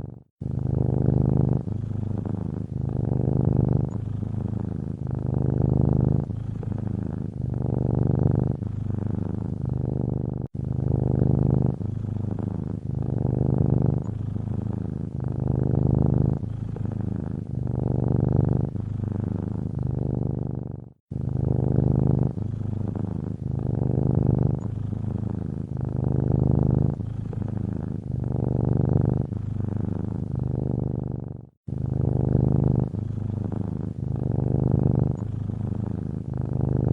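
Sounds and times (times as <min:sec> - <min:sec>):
cat purring: 0:00.0 - 0:36.9.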